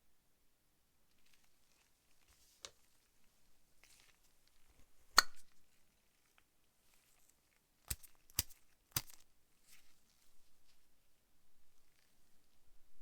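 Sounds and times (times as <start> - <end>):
metal lighter clicks: 7.9 - 9.2.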